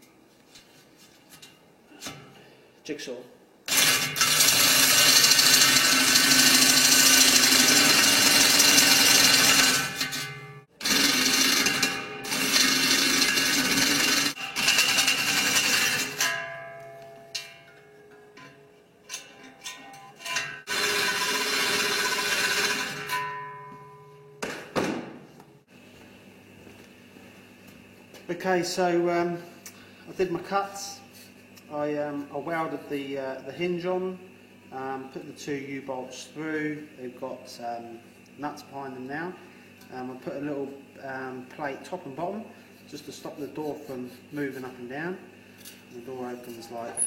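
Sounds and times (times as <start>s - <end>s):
jigsaw cutting steel sheet: 3.7s - 16.3s, 20.3s - 23.2s.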